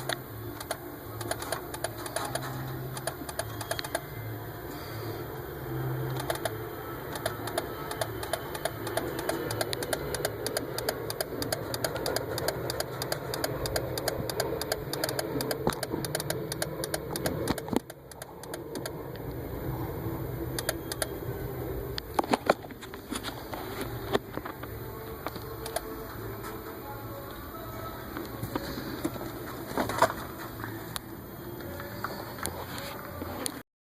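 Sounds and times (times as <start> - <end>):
flasher relay clicking: 0.0 - 4.1, 6.1 - 19.4, 20.5 - 21.2.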